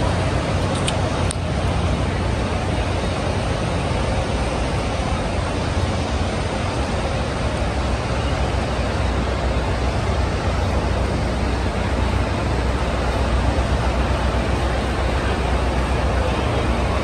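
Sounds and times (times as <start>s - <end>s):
train equipment rumble and hiss: 0.0s - 17.0s.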